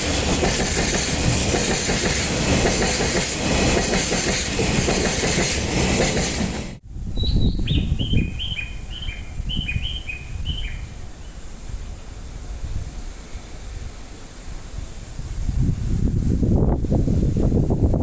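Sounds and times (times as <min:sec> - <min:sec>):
train wheels clattering on rails: 0:00.0 - 0:06.8.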